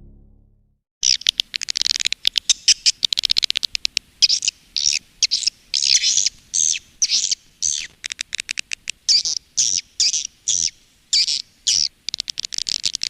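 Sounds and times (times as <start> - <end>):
sharp high bird clicks: 1.0 - 9.3.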